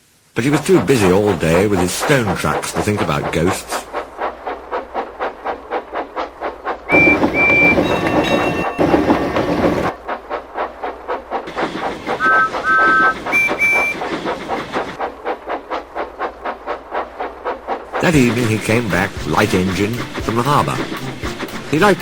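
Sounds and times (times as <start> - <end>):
steam rushing: 0.0 - 22.0
steam engine chuffing: 0.4 - 22.0
steam whistle toots: 6.9 - 8.8, 12.2 - 14.1.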